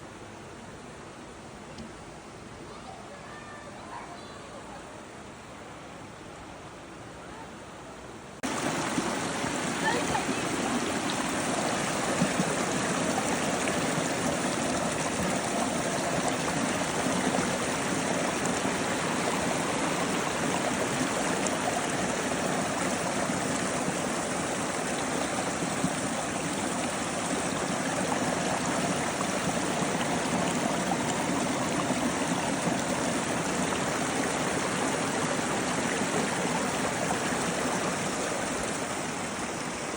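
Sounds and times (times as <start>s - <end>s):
stream water flowing: 8.4s - 39.9s.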